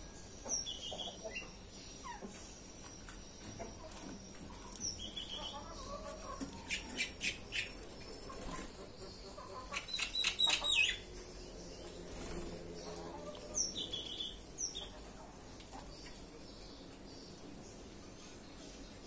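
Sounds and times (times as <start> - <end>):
bird wings fluttering: 12.0 - 12.7.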